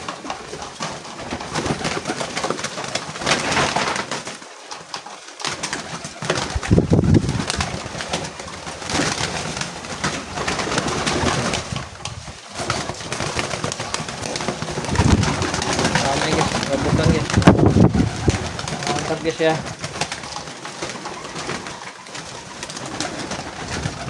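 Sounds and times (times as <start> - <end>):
pigeons clicking and scuffling: 0.0 - 24.0
pigeons cooing: 5.6 - 24.0.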